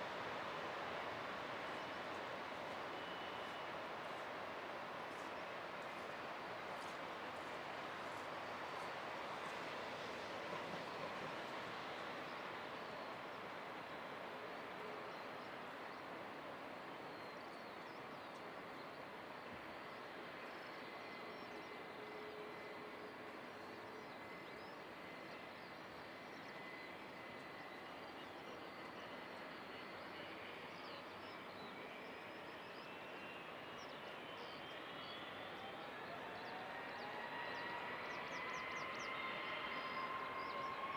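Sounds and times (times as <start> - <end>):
rising engine whine: 31.4 - 40.9.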